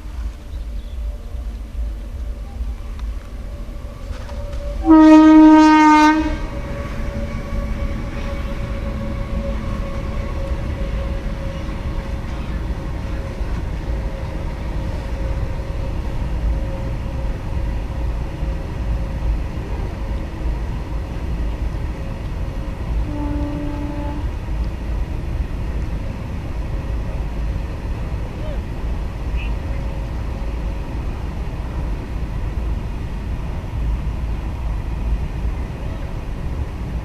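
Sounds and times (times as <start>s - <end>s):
train rumbling past: 0.0s - 37.0s
locomotive horn blast: 2.5s - 17.2s, 22.9s - 24.4s.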